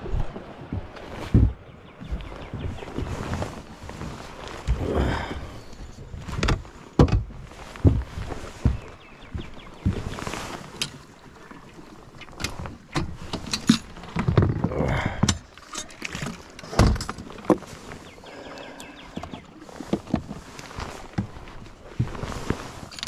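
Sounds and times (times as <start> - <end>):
heavy low thump: 0.1 - 2.8
knocks and clunks: 0.1 - 3.1, 6.3 - 10.1, 12.3 - 15.5, 16.1 - 17.7.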